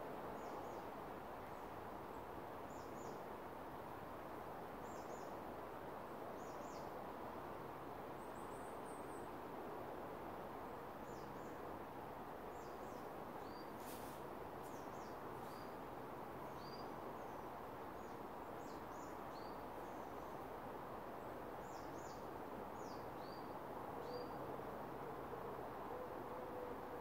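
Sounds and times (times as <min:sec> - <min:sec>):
steady rushing hiss: 0:11.6 - 0:18.4
small birds chirping: 0:12.5 - 0:15.8.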